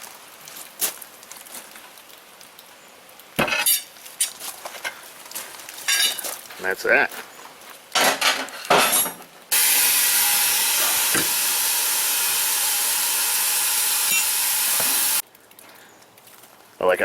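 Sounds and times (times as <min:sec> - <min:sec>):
compressed air hissing: 0:09.5 - 0:15.2.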